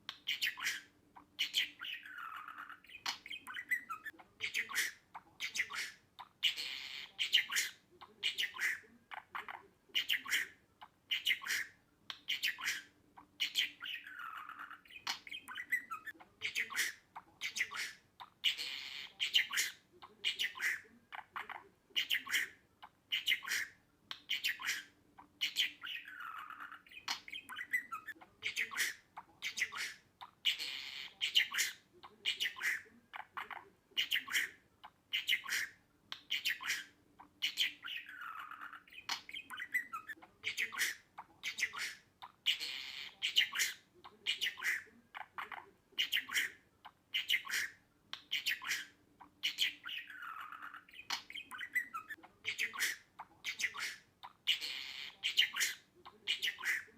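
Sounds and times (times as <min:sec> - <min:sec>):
budgerigar chirping and chattering: 0:00.0 - 0:56.9.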